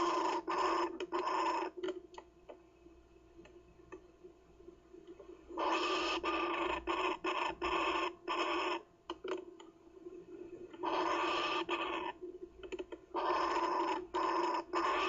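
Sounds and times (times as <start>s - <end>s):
kookaburra chick rasping call: 0.0s - 1.8s, 5.6s - 8.8s, 10.8s - 12.2s, 13.1s - 15.0s.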